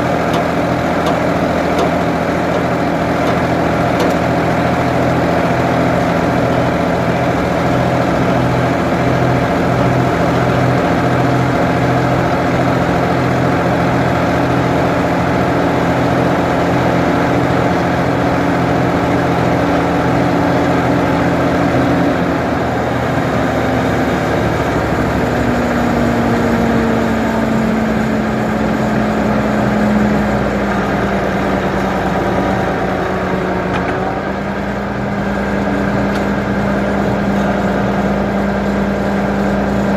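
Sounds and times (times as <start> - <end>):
backhoe engine running: 0.0 - 39.9.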